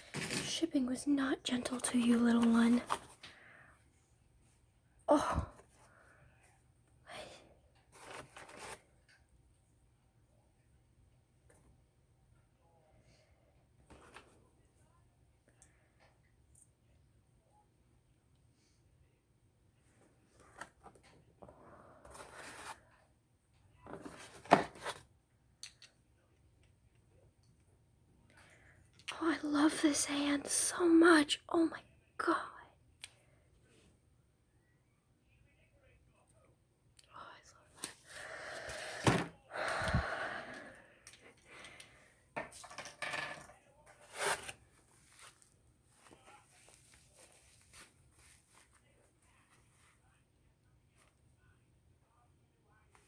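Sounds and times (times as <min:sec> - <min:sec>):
packaging rustling and crinkling: 0:44.1 - 0:48.8.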